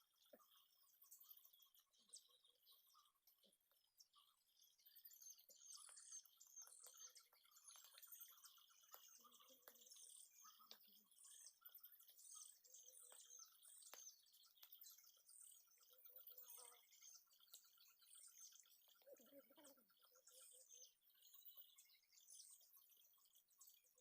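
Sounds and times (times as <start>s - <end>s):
forest birds chirping: 0.0s - 24.0s.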